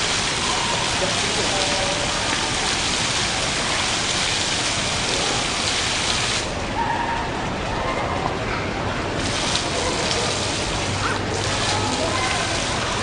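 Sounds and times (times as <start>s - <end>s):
water falling and splashing: 0.0s - 13.0s.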